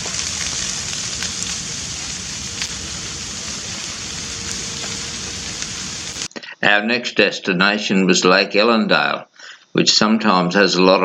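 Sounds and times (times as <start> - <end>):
grass fire crackling: 0.0 - 6.3
sharp pops from fire: 0.0 - 6.3.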